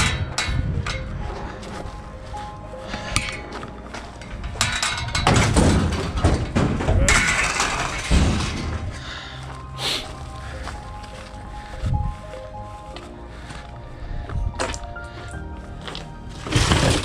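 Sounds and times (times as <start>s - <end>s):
objects clattering and thumping: 0.0s - 10.9s, 14.3s - 17.0s
faint background music: 0.0s - 17.0s.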